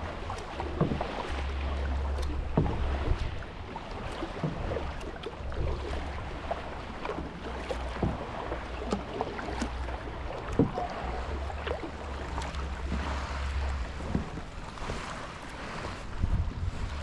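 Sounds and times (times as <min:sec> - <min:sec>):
paddle splashing in water: 0:00.0 - 0:17.0
low rumble: 0:09.8 - 0:15.3, 0:16.0 - 0:17.0.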